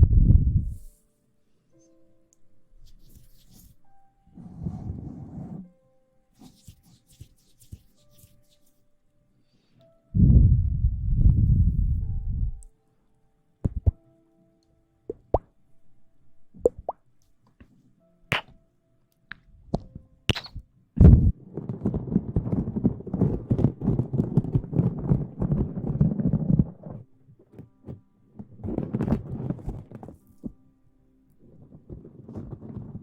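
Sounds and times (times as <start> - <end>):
asmr rustling and rubbing: 6.4 - 8.8, 20.3 - 30.6, 31.4 - 33.0
taps and clicks: 13.6 - 14.0.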